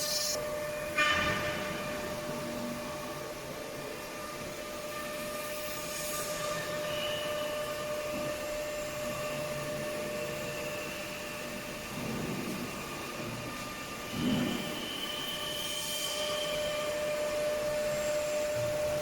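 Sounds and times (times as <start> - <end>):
machine hiss: 0.0 - 0.4
stone milling machine whine: 0.0 - 0.4.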